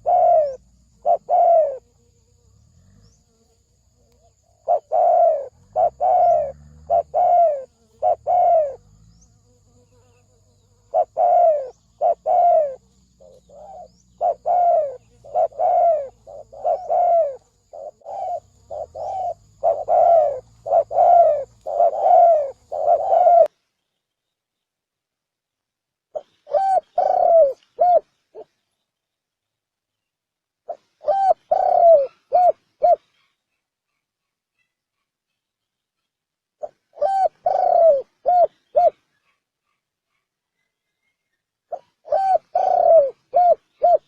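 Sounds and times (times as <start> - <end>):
dove cooing: 0.0 - 1.8, 4.5 - 9.2, 10.8 - 23.5, 26.2 - 28.5, 30.7 - 33.0, 36.6 - 39.0, 41.7 - 44.0.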